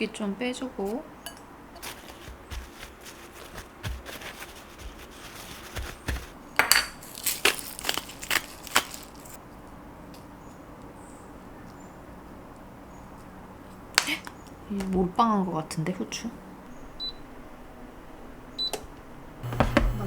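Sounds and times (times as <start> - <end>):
steady room hum: 0.0 - 20.0.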